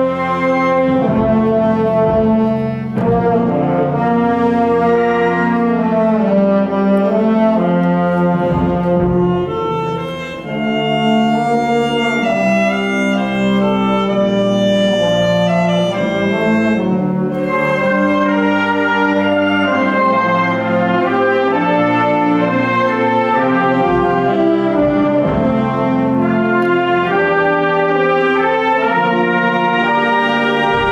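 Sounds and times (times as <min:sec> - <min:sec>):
wind band playing chords: 0:00.0 - 0:30.9.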